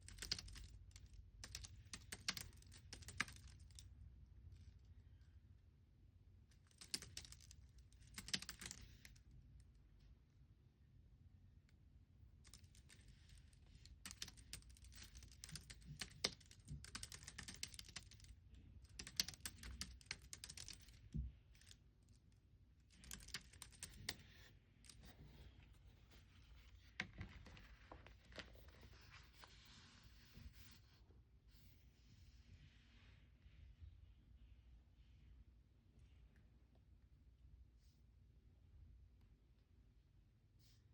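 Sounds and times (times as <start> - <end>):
keyboard typing: 0.0 - 3.8, 6.7 - 9.2, 12.5 - 21.8, 22.9 - 24.4.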